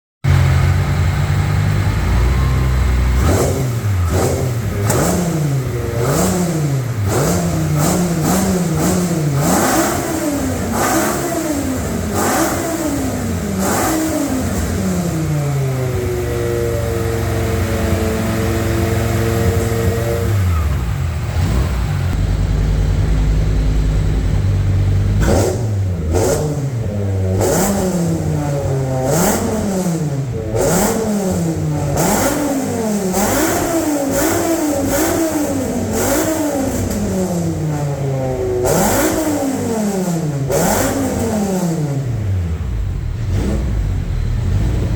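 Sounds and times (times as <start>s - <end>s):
engine idling and revving: 0.2s - 44.9s.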